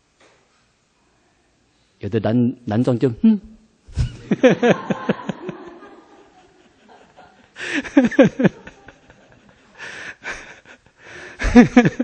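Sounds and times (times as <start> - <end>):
breathy chuckling laughter: 4.2 - 12.0
breathy exhale: 11.0 - 11.4.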